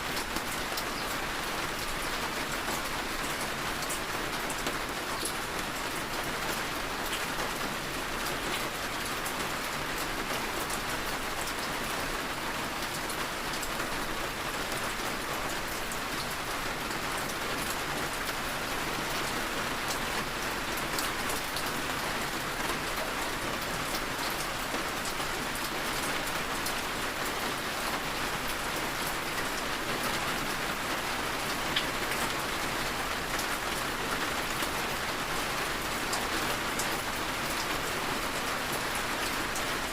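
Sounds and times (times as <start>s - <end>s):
raindrops ticking on a surface: 0.1s - 39.9s.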